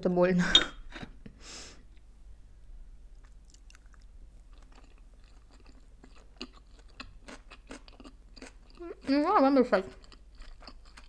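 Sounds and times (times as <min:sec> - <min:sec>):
chewing mouth clicks and smacks: 0:03.1 - 0:08.8.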